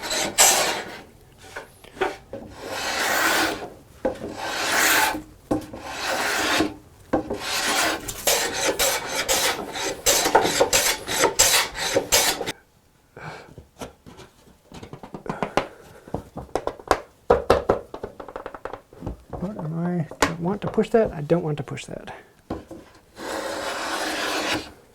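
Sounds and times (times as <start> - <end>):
hand tool rasping wood: 0.0 - 12.5, 23.2 - 24.8.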